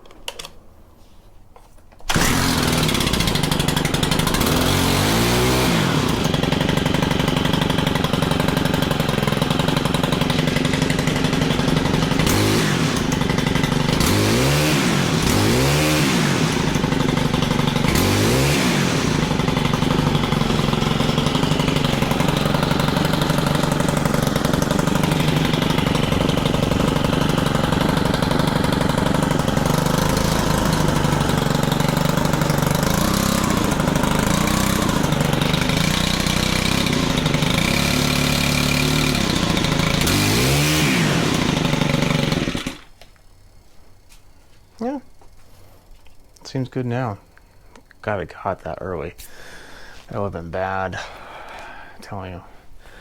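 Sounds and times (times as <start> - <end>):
small engine starting and revving: 2.0 - 43.1.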